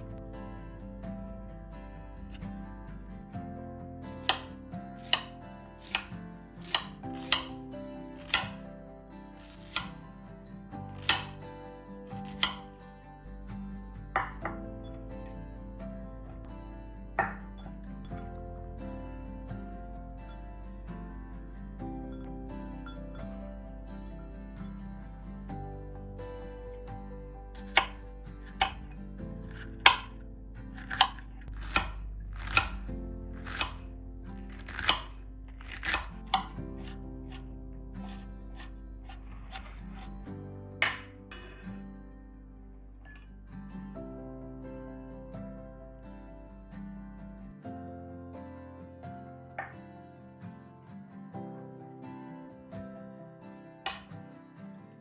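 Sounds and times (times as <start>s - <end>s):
soft background music: 0.0s - 55.0s
knife slicing onion on cutting board: 4.2s - 7.6s, 8.2s - 8.7s, 9.4s - 10.0s, 10.9s - 11.4s, 12.1s - 12.7s, 27.6s - 41.8s, 53.9s - 54.1s.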